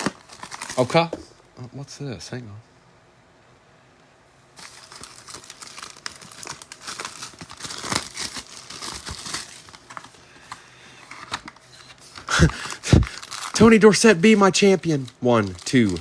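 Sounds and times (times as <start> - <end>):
plastic wrapping crinkling and tearing: 0.0 - 1.1, 4.6 - 10.2, 11.0 - 16.0.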